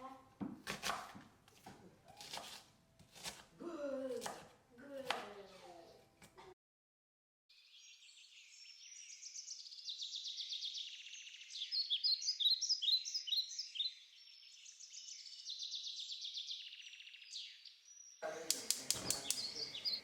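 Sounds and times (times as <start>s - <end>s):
songbirds chirping and singing: 7.5s - 20.0s.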